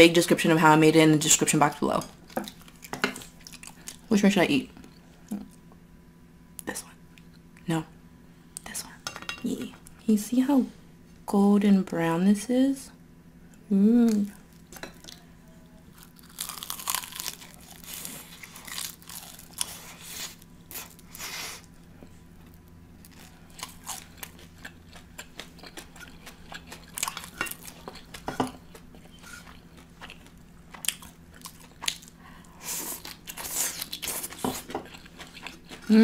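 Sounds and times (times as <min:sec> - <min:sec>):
chicken wing crunching and chewing: 0:15.9 - 0:21.7, 0:22.5 - 0:36.0.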